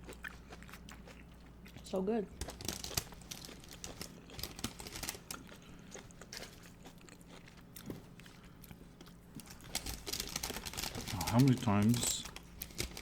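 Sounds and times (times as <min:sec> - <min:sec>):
person chewing crunchy food: 0:00.0 - 0:13.0.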